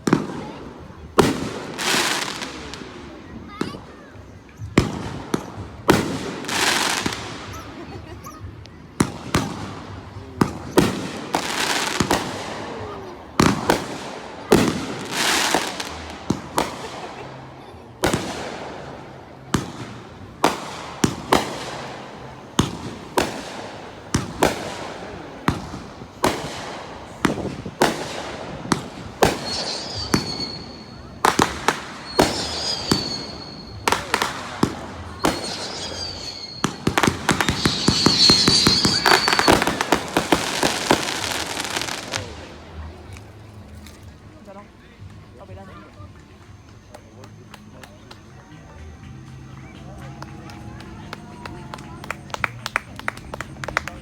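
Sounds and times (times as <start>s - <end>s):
fireworks bursting: 0.0s - 43.3s
fireworks crackling: 0.0s - 54.0s
high wavering whistles: 29.3s - 31.1s, 31.9s - 34.1s, 35.2s - 40.0s.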